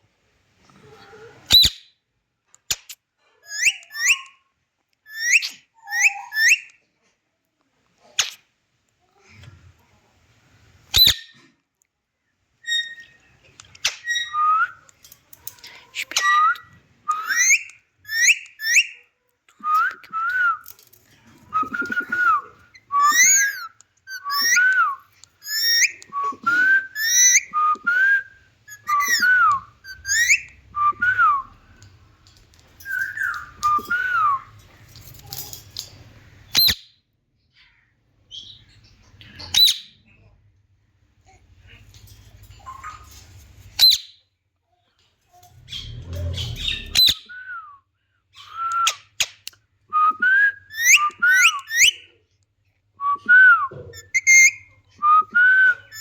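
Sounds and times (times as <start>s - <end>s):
parrot whistling: 21.5s - 31.5s, 50.0s - 52.0s, 53.2s - 56.0s.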